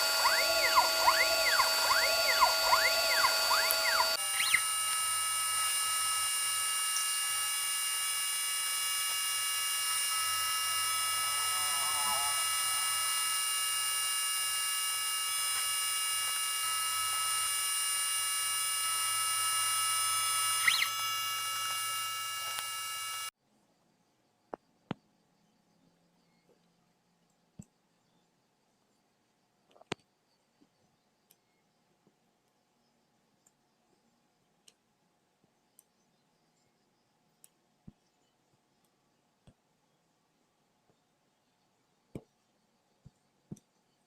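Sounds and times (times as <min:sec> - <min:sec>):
rising and falling chirp: 0:00.0 - 0:04.8, 0:20.2 - 0:21.6
laser engraver electronic whine: 0:00.0 - 0:23.4.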